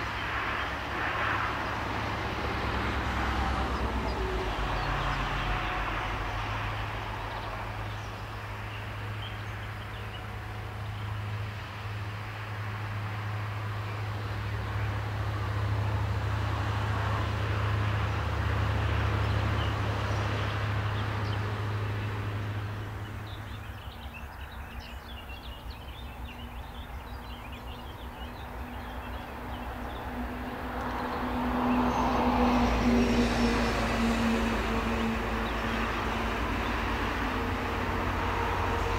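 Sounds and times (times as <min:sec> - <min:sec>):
vehicle approaching with steady tone: 0:00.0 - 0:38.9
faint birds chirping: 0:19.1 - 0:33.2
train rushing past: 0:30.2 - 0:38.9.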